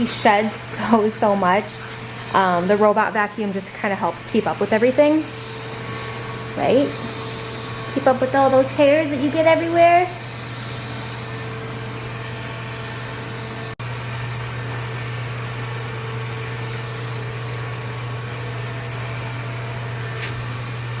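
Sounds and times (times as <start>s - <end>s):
robot vacuum motor whirring: 0.0s - 21.0s.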